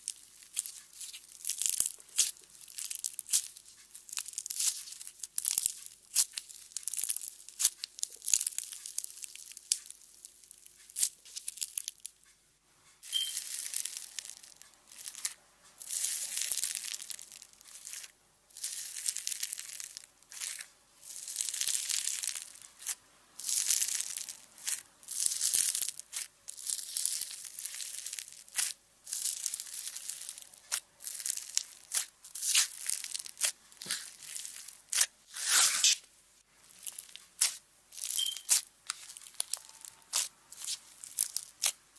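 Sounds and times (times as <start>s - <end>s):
slime squished by hand: 0.0s - 10.0s, 13.1s - 36.0s, 36.6s - 41.8s.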